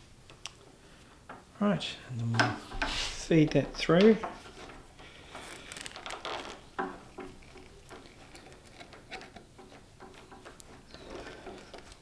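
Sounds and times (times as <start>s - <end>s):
small irregular clicks: 0.2s - 0.7s, 4.0s - 12.0s
cable rubbing and rustling: 2.6s - 12.0s.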